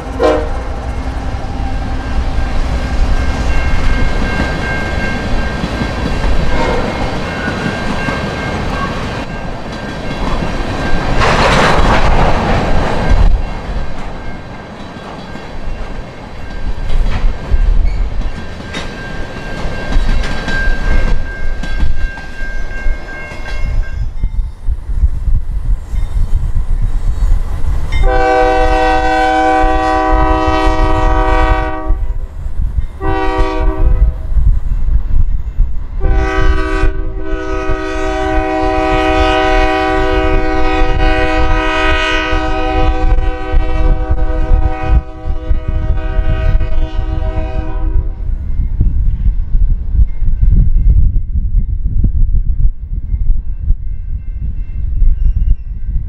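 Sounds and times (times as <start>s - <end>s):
locomotive horn blasts: 0.0s - 0.9s, 28.0s - 32.1s, 33.0s - 34.1s, 36.0s - 48.2s
train wheels clicking over rail joints: 0.8s - 23.8s.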